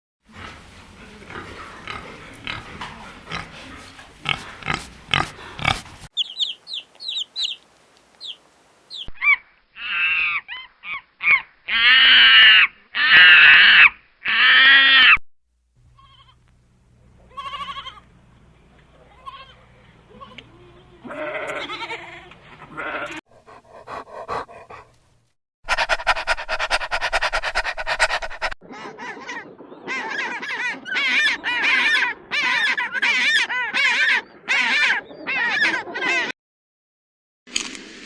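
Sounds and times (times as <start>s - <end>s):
drawn-out animal calls: 0.3s - 7.6s, 25.7s - 36.3s
rough animal sounds with clicks: 0.4s - 6.1s.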